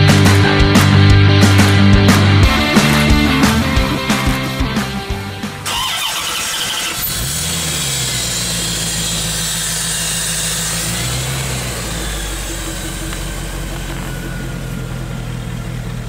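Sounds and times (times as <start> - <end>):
car engine idling: 0.0 - 16.0
starter cranking: 5.6 - 16.0.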